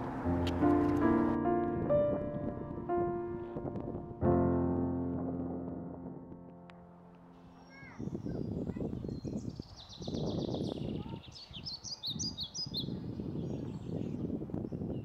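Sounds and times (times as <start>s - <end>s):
gusty low rumble: 0.0s - 6.7s
small birds chirping: 7.4s - 15.0s.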